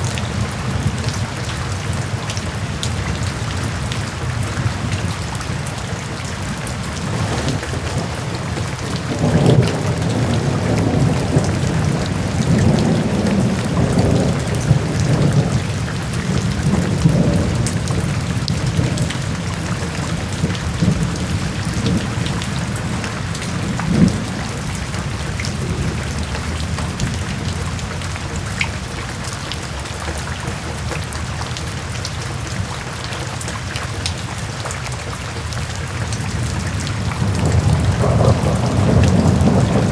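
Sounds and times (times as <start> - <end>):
rain hissing and pattering: 0.0 - 39.9
thunder rumbling: 4.6 - 28.8, 36.2 - 39.9.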